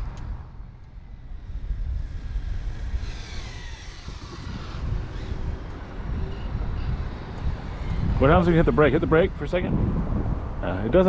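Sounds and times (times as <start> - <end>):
wind rumble on microphone: 0.0 - 11.0
toy car electric motor whining: 1.0 - 9.0.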